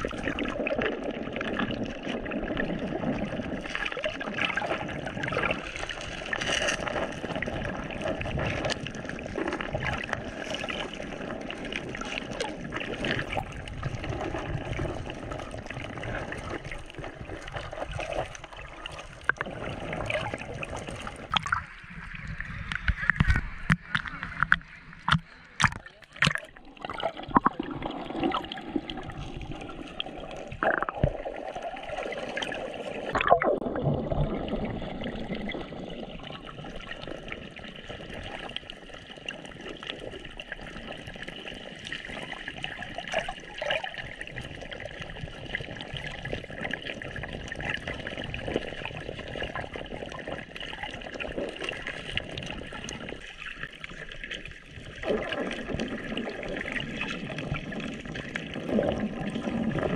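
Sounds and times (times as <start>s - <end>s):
water trickling: 0.0s - 59.9s
sharp knocks or splashes: 22.8s - 26.6s.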